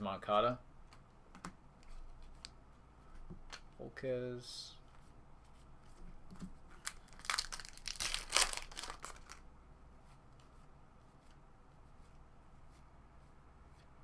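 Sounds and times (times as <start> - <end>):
faint clicks of cards handled: 0.9 - 3.8
wrapper crinkling and tearing: 6.8 - 9.4.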